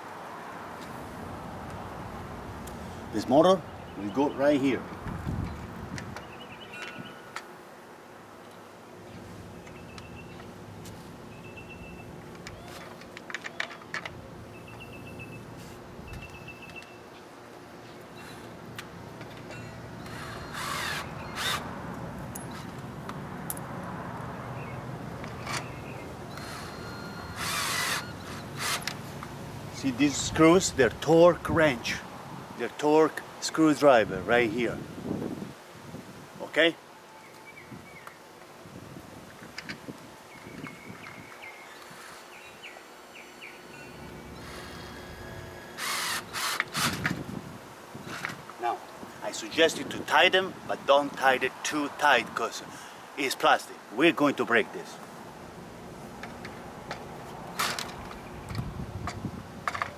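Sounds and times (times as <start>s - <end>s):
light clicks and knocks of parts: 12.3s - 14.8s, 56.0s - 59.9s.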